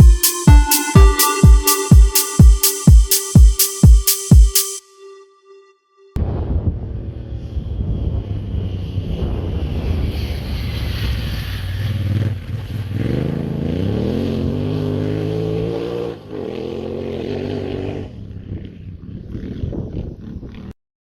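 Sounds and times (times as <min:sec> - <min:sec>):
wind noise on microphone: 0:18.4 - 0:20.7.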